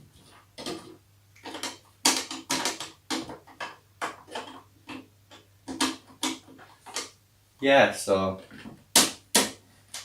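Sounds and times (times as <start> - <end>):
rustling and clattering of objects: 0.0 - 7.2, 8.3 - 8.9.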